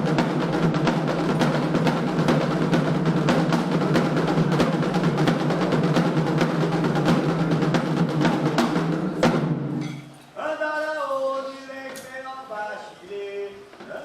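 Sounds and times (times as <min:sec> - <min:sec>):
fast hand drumming: 0:00.0 - 0:09.6.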